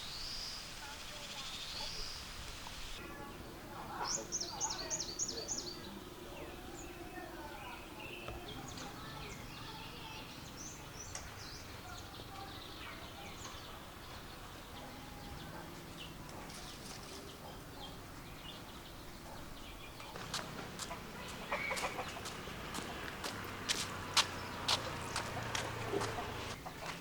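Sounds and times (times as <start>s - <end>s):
chickens clucking: 19.3s - 27.0s.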